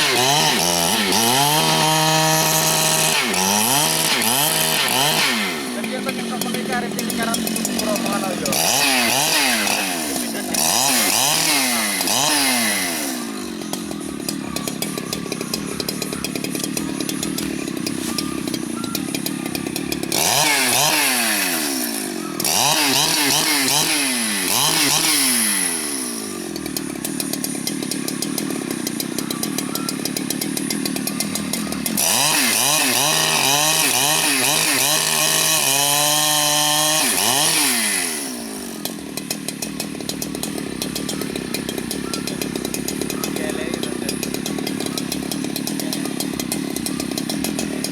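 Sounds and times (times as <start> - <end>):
chainsaw revving and cutting wood: 0.0 - 47.9.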